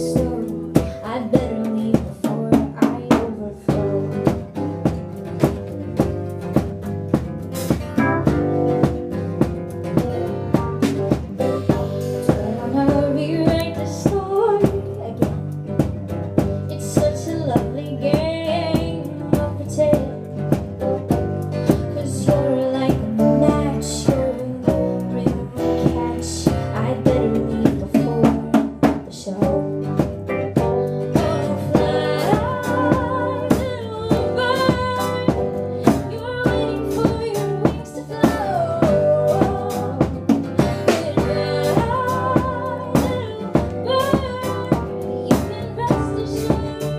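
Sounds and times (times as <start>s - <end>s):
person singing: 0.0s - 4.5s, 11.3s - 15.4s, 21.6s - 46.9s
drum kit beat: 0.0s - 46.9s
guitar: 0.0s - 46.9s
live band playing: 0.0s - 46.9s.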